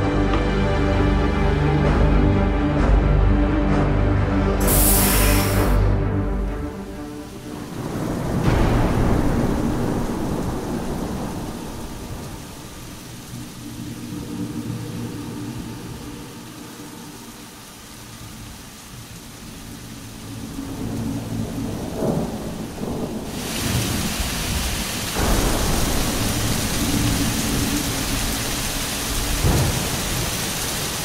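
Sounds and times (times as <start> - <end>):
heavy rain: 0.0 - 31.0
low rumbles of thunder: 7.5 - 15.8, 20.3 - 31.0.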